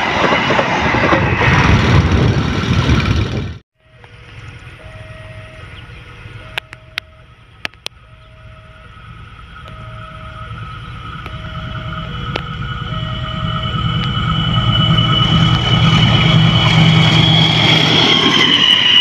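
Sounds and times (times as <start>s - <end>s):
diesel train engine rumble: 0.0s - 19.0s
high whine: 0.0s - 19.0s
level crossing two-tone alarm: 3.8s - 7.3s, 8.0s - 16.7s.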